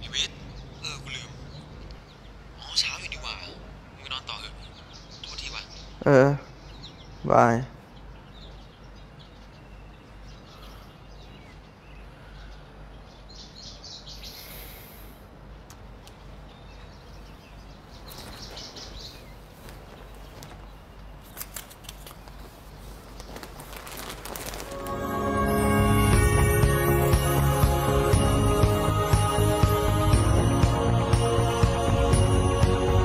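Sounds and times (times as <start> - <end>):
faint birds chirping: 0.0 - 25.0.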